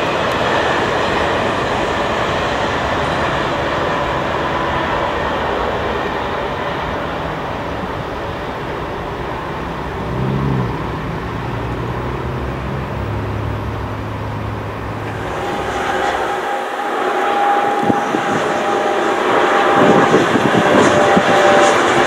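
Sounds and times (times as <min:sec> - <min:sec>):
high-speed train passing: 0:00.0 - 0:22.0
brief rising tone: 0:09.7 - 0:22.0.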